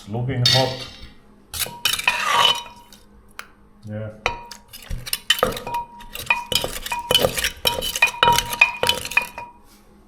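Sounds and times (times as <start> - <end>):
utensils clinking in a mortar: 0.5 - 3.1, 4.3 - 9.6.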